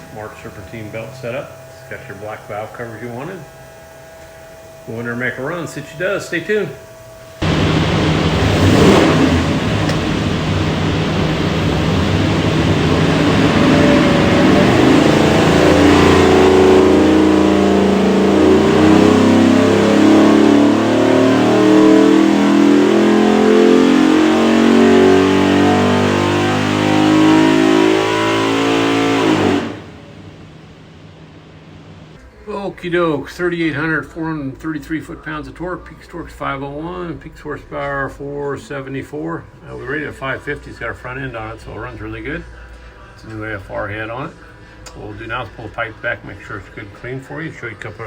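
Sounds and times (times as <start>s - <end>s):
engine revving on dyno: 0.0s - 32.2s.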